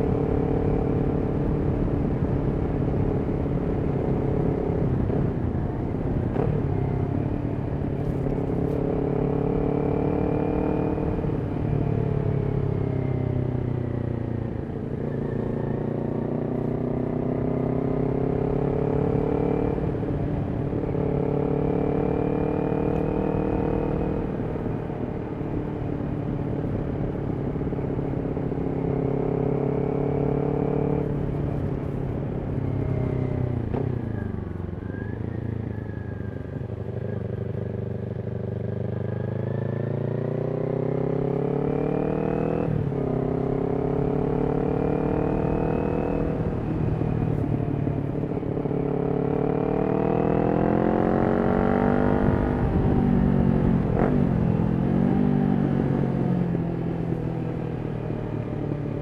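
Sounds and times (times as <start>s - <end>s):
motorcycle engine revving: 36.7s - 58.4s.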